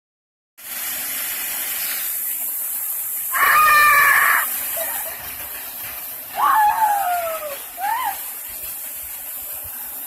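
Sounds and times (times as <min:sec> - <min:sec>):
waterfall rushing: 0:03.2 - 0:05.6.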